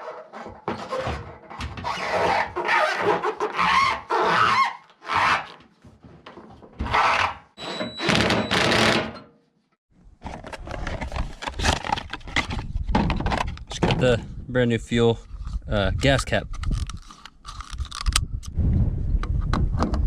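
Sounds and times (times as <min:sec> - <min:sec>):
thunks: 0:12.9 - 0:14.3.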